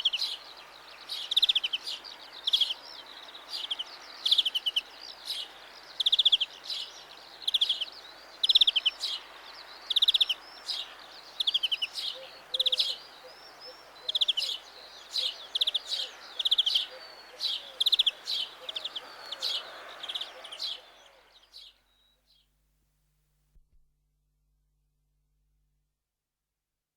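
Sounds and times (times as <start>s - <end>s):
finch singing trills: 0.0s - 22.4s
bird twittering: 9.8s - 22.2s.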